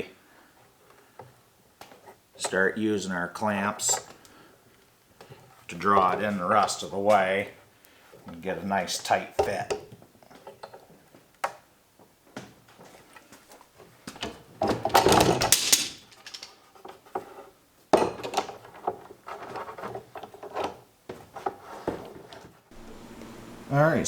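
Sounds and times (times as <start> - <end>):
scraping and rubbing: 18.7 - 22.6.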